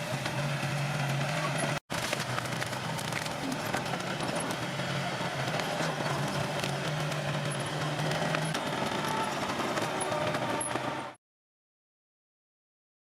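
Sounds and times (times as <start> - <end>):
bulldozer diesel engine running: 0.0 - 11.2.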